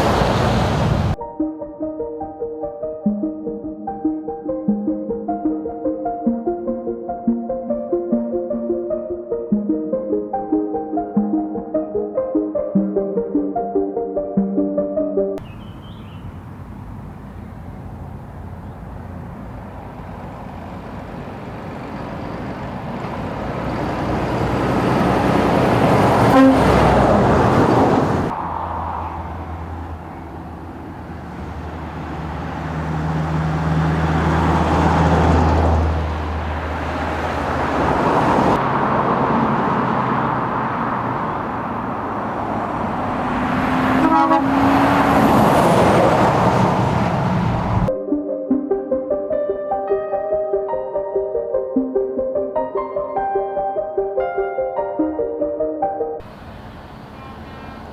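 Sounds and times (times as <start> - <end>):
heavy truck engines passing: 0.0 - 1.2, 15.5 - 47.9, 56.2 - 57.9
truck horn toot: 25.7 - 30.4, 43.6 - 45.4, 57.1 - 57.9.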